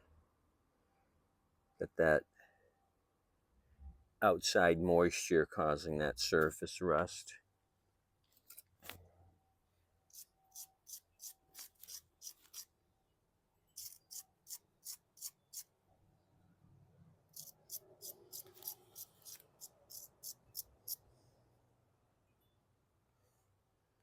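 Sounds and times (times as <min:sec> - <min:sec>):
quick scraping strokes on metal: 0:10.1 - 0:12.7, 0:13.8 - 0:15.7, 0:17.3 - 0:21.0.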